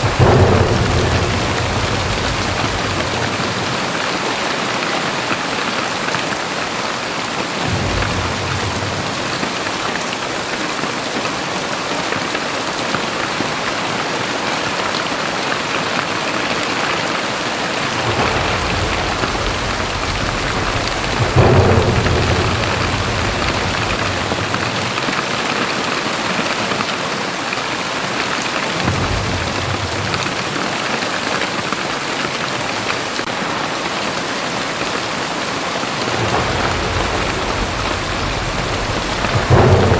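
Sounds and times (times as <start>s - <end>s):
low rumbles: 0.0s - 4.2s, 7.6s - 9.8s, 17.7s - 25.5s, 35.9s - 39.9s
heavy rain pouring: 0.0s - 39.9s.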